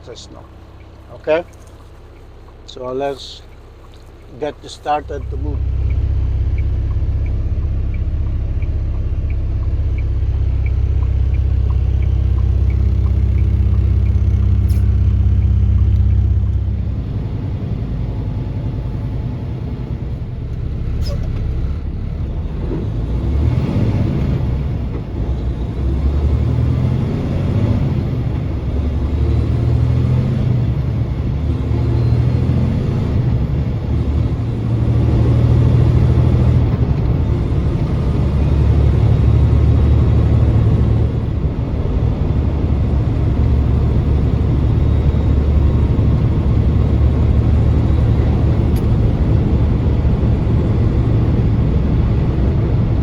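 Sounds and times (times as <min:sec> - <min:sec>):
road noise: 0:00.0 - 0:53.0
vehicle engine drone: 0:00.0 - 0:53.0.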